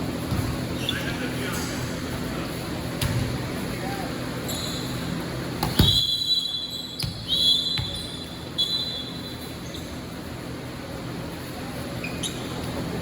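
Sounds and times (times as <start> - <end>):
basketball bouncing on court: 0.2 - 0.7, 2.9 - 3.5, 5.5 - 6.2, 7.0 - 8.3
high steady squeals: 4.4 - 10.2.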